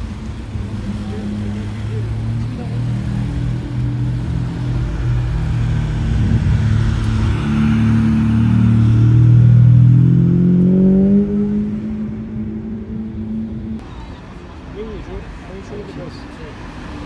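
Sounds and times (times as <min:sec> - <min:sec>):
sports car engine passing by: 0:00.5 - 0:13.8.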